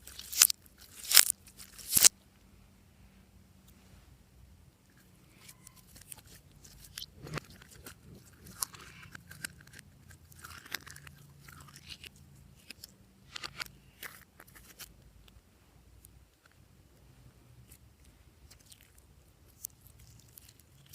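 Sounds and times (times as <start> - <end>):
hands squishing slime: 0.0 - 2.1.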